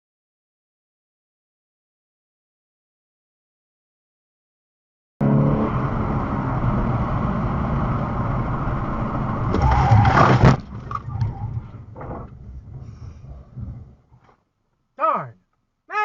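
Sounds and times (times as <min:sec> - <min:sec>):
car engine: 0:05.2 - 0:14.3
road noise: 0:05.2 - 0:14.3
knocks and rustles: 0:09.5 - 0:14.4.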